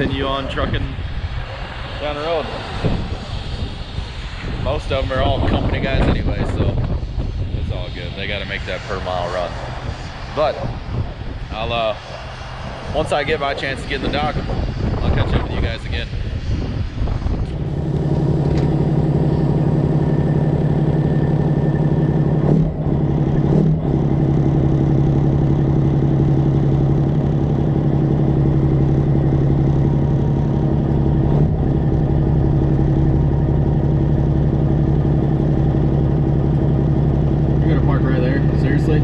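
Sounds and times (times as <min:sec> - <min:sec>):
diesel truck engine running: 0:17.1 - 0:39.0.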